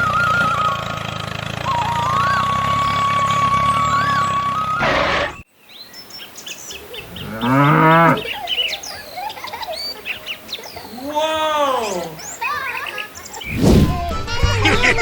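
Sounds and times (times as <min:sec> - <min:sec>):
birds chirping: 0:00.0 - 0:14.0
cow mooing: 0:02.7 - 0:05.4, 0:07.2 - 0:08.3
brief burst of noise: 0:13.4 - 0:14.1.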